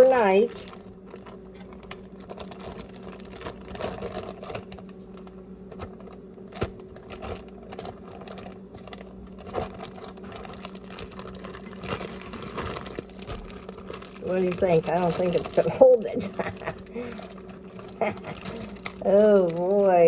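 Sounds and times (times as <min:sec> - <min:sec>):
plastic bag rustling: 0:00.0 - 0:20.0
steady low hum: 0:00.0 - 0:20.0.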